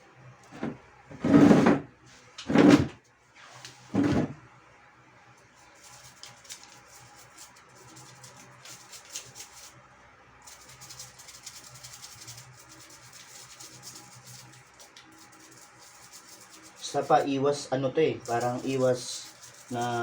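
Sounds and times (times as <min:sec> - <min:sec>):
toothbrush scrubbing pulley wheel: 0:05.7 - 0:09.7, 0:10.4 - 0:17.3, 0:18.2 - 0:20.0.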